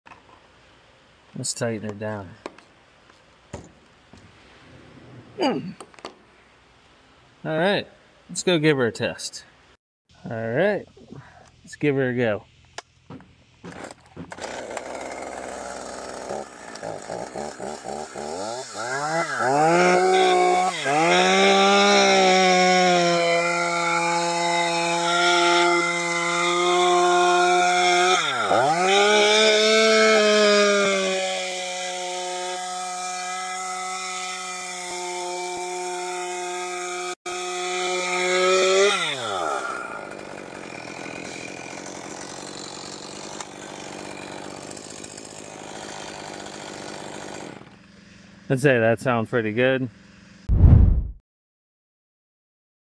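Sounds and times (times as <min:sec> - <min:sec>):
chainsaw starter pulls: 0:13.6 - 0:21.2, 0:38.6 - 0:47.8
chainsaw engine revving: 0:13.7 - 0:47.9.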